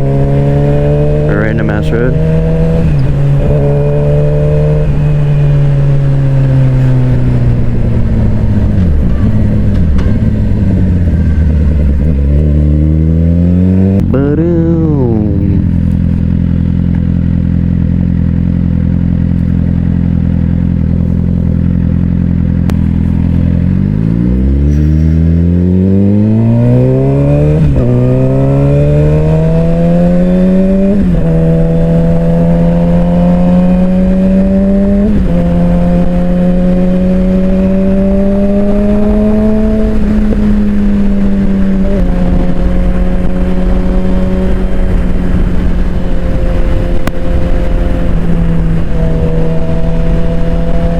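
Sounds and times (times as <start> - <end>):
motorcycle engine revving: 0.0 - 50.9
wind noise: 22.7 - 50.9.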